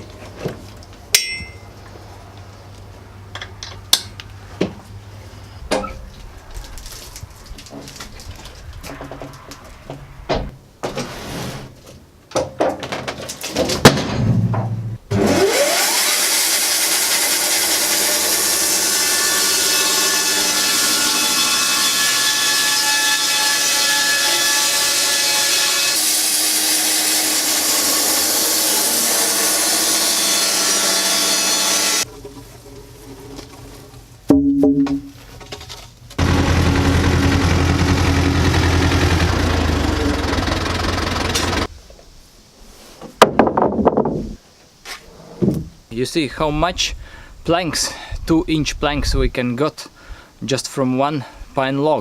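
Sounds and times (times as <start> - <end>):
band sawmill sawing log: 15.1 - 33.8, 36.2 - 41.7
knocks and clatter: 43.2 - 44.3.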